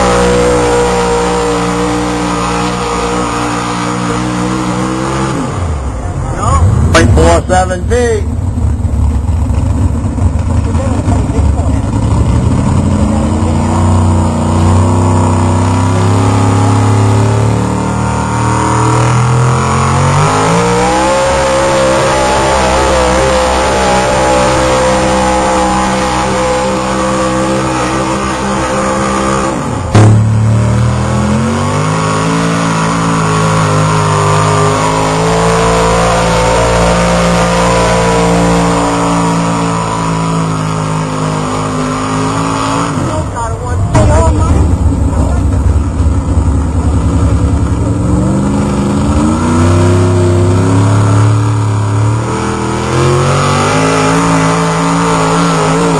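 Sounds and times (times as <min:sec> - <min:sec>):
truck engine running under load: 0:00.0 - 0:55.9
sharp bang: 0:43.8 - 0:48.0.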